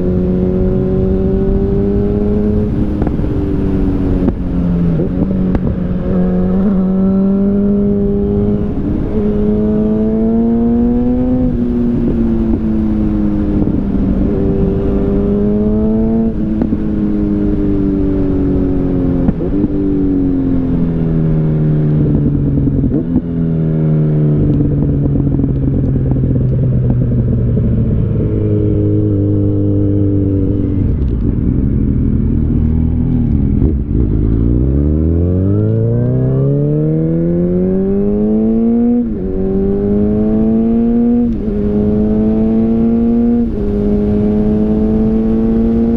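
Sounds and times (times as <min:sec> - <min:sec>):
motorcycle engine shifting gears: 0:00.0 - 0:45.9.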